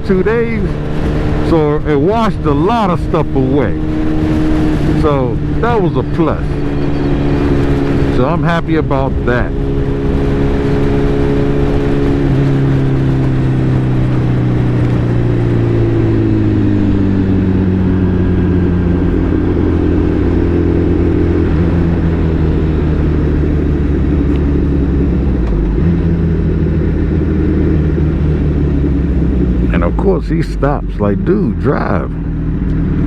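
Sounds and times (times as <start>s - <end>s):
motorcycle engine: 0.0s - 33.0s
wind and road noise: 0.0s - 33.0s.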